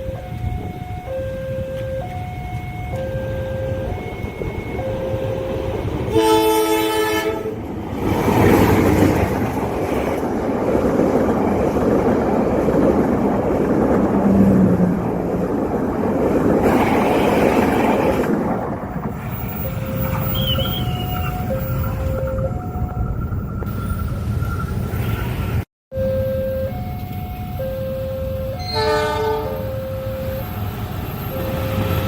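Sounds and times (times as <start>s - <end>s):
level crossing alarm tones: 0.0s - 7.0s, 19.2s - 24.9s, 25.9s - 32.0s
train rumbling and rattling past: 0.0s - 25.7s, 28.4s - 32.0s
train horn blast: 6.0s - 7.6s, 28.6s - 29.8s.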